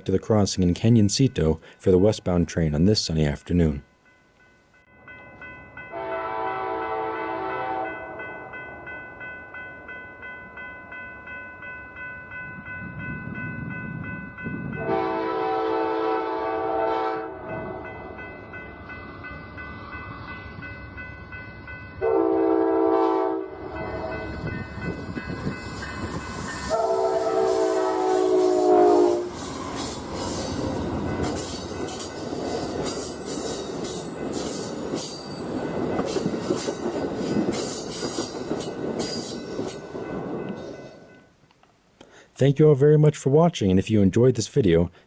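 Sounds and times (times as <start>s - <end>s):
crossing bell ringing: 0.8s - 41.4s
locomotive horn blasts: 5.9s - 8.5s, 14.8s - 17.8s, 22.0s - 24.3s, 26.7s - 29.4s
train rumble: 12.0s - 41.2s.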